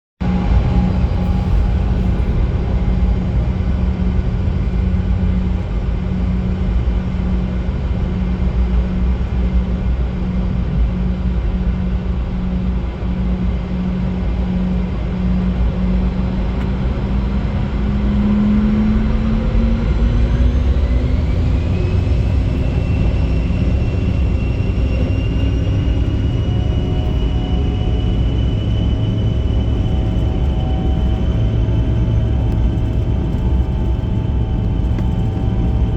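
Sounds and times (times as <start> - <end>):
jet engines spooling up: 12.6 - 35.9.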